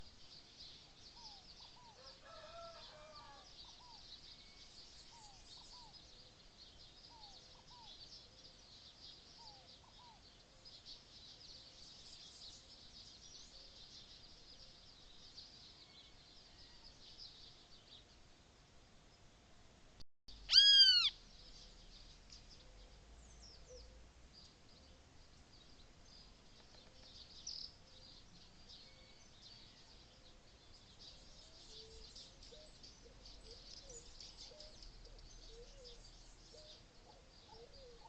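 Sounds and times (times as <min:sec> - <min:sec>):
lower multi-tone bird call: 0:20.3 - 0:21.8, 0:31.1 - 0:38.0.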